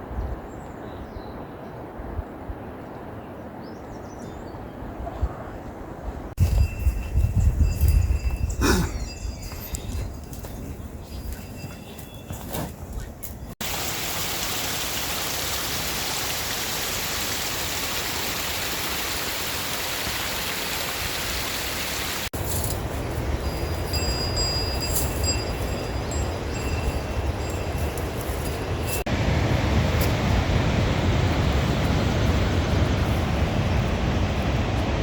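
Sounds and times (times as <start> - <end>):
fast mountain stream rushing: 13.6 - 22.3.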